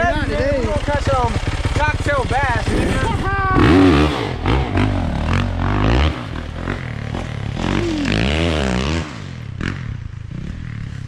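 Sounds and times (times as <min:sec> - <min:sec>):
dirt bike engine running: 0:00.0 - 0:11.0
clatter and scraping: 0:00.4 - 0:07.9.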